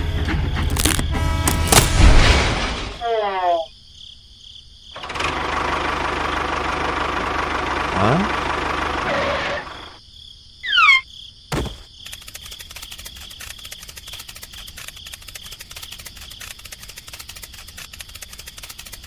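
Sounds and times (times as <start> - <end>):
insects chirring: 0.0 - 5.2, 9.0 - 19.0.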